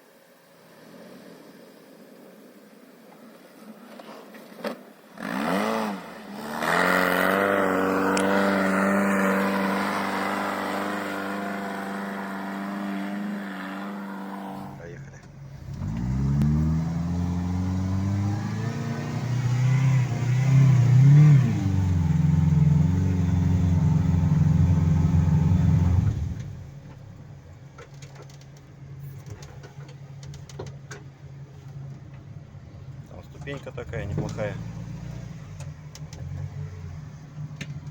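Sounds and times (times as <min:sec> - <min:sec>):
engine revving under load: 0:05.2 - 0:27.2, 0:33.8 - 0:37.9.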